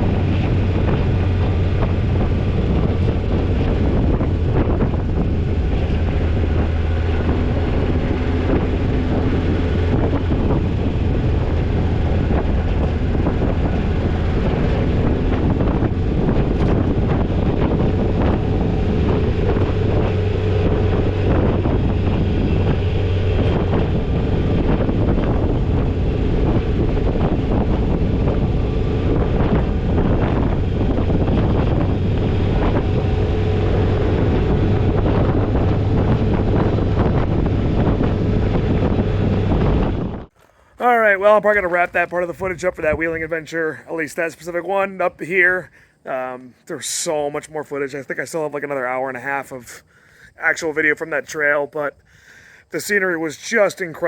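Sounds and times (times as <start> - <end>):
car engine drone: 0.0 - 43.2
wind on microphone: 0.0 - 54.0.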